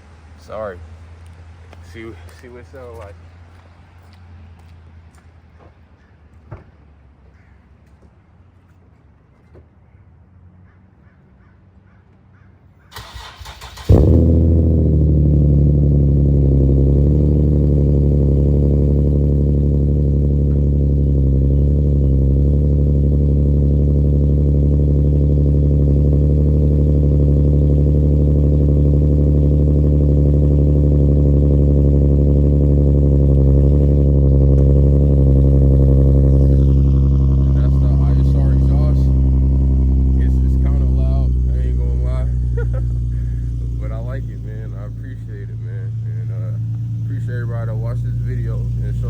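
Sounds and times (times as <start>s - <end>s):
car engine idling loudly: 13.1s - 49.0s.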